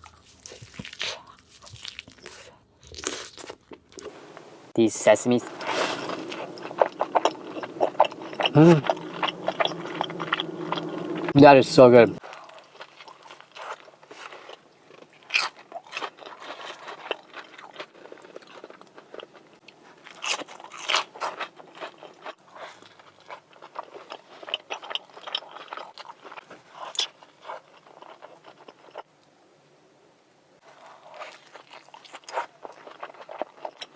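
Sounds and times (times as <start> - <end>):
wet chewing: 5.3 - 29.1, 30.6 - 33.9
crunching bites: 5.4 - 11.4.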